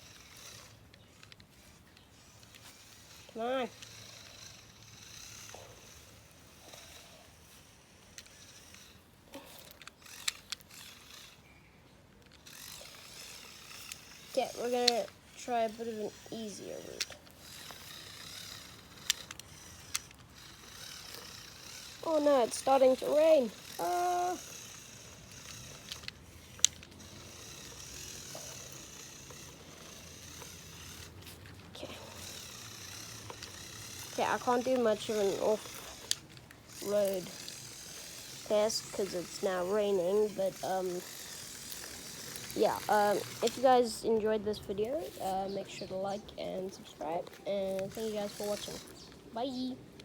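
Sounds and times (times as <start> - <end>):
toy truck motors whirring: 0.0 - 50.0
sharp clicks: 8.1 - 11.4, 12.1 - 43.8.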